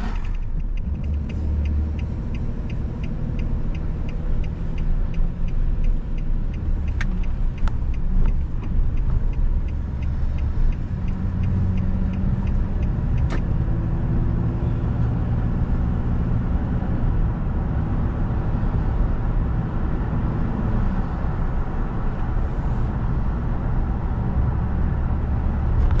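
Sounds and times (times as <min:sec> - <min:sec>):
even ticking: 0:00.0 - 0:14.0
car engine and tyres rumbling: 0:00.0 - 0:26.0.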